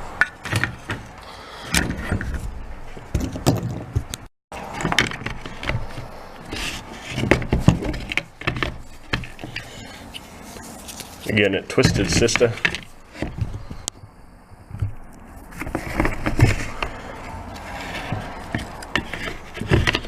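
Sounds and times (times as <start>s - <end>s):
gear case parts clicking and rattling: 14.7s - 20.0s.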